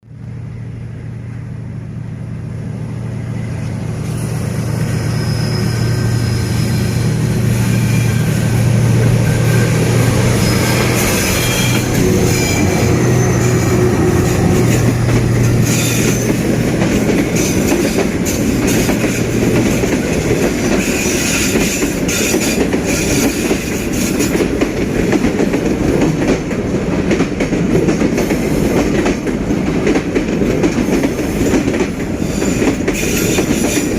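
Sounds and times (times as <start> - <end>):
diesel locomotive engine drone: 0.0 - 33.9
high wheel squeals: 3.1 - 24.3, 32.1 - 33.9
train wheel clatter: 3.7 - 33.9.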